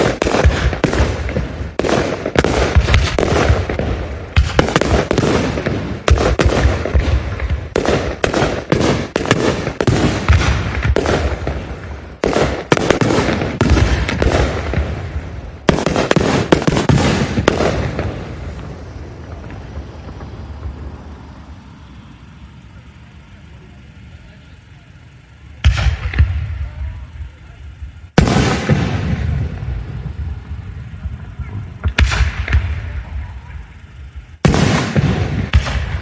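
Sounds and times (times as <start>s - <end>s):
fireworks bangs with echoes: 0.0s - 21.5s, 25.6s - 36.0s.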